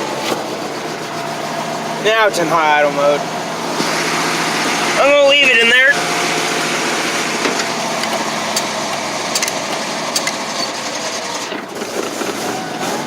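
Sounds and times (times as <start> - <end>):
truck engine at high idle: 0.0 - 13.0
light engine ticks: 8.0 - 10.4.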